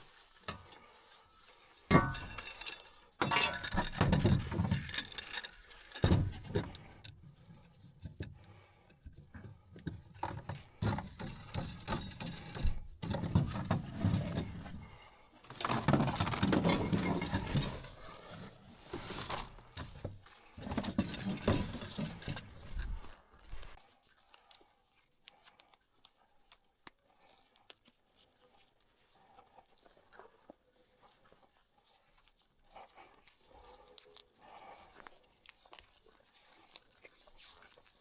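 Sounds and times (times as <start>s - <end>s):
hard objects knocking and rattling: 1.9s - 8.4s, 9.1s - 23.8s.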